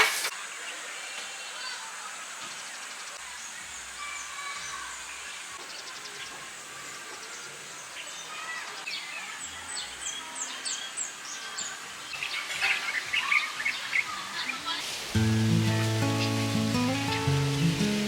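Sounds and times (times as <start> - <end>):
steady hiss: 0.0 - 8.6, 14.6 - 18.0
birds chirping: 2.5 - 18.0.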